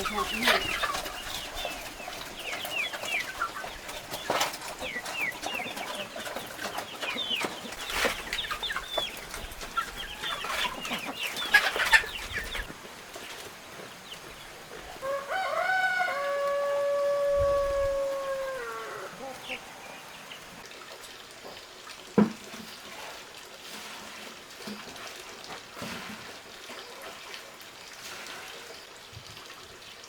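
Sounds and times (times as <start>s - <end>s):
chickens clucking: 0.0s - 20.6s
long held chicken call: 15.0s - 20.2s.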